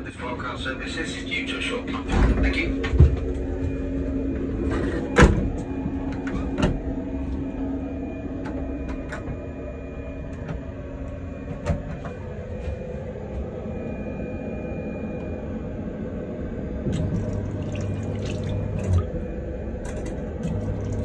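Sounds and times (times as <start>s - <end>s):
electric train rumble: 0.0s - 21.0s.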